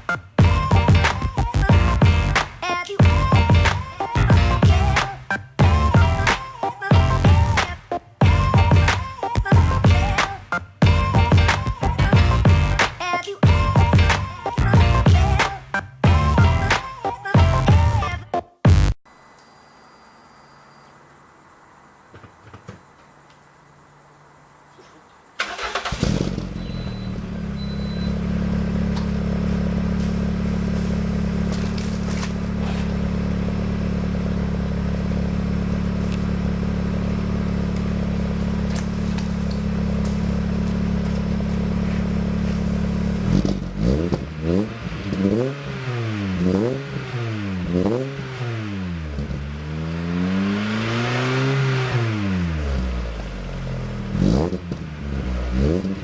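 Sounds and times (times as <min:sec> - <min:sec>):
car engine starting and idling: 0:25.3 - 0:56.0
engine revving in quick blips: 0:25.4 - 0:56.0.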